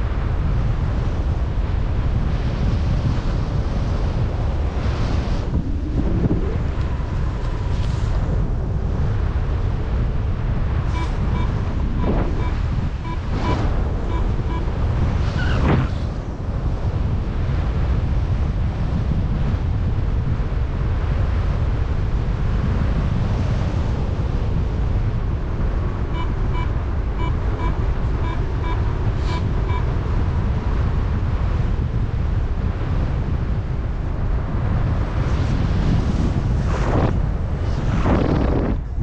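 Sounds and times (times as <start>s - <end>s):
heavy wind on microphone: 0.0s - 39.0s
variometer short beeps: 10.9s - 14.7s, 26.1s - 29.9s.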